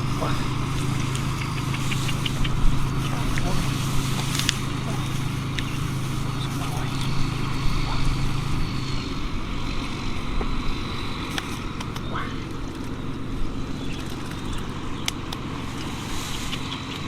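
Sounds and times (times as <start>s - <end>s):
scattered clicks: 0.0s - 7.8s, 11.3s - 17.0s
motor humming: 0.0s - 17.0s.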